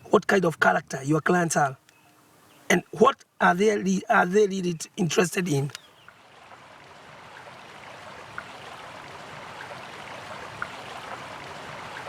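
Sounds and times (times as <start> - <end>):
stream water rushing: 5.0 - 12.0.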